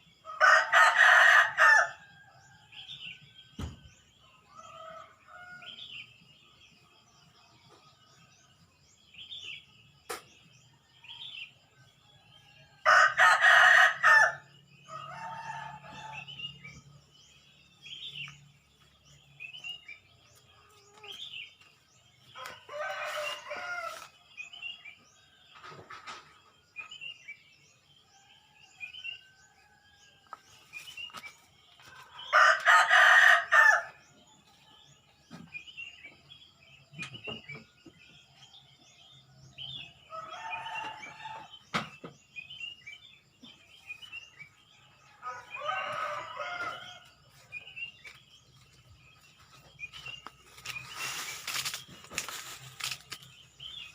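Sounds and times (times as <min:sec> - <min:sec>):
rooster crowing: 0:00.3 - 0:02.2, 0:12.8 - 0:16.6, 0:22.4 - 0:24.1, 0:32.2 - 0:34.0, 0:45.2 - 0:47.1
small birds chirping: 0:14.6 - 0:53.9.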